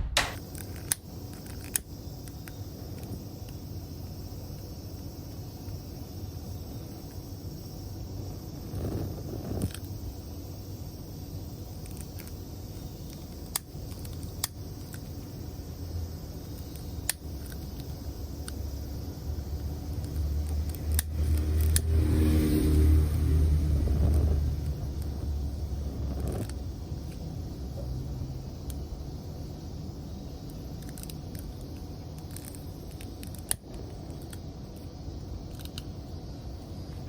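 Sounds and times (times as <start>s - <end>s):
sharp clicks: 0.0s - 3.6s
steady low hum: 0.0s - 37.0s
passing vehicle rumble: 20.2s - 26.0s.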